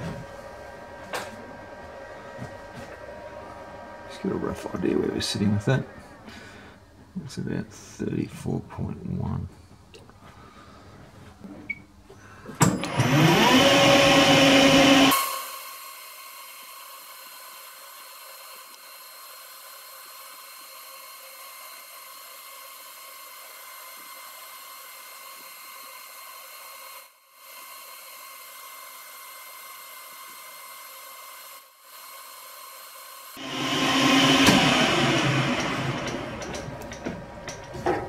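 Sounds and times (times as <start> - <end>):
metal lathe whine and hiss: 12.9 - 37.6.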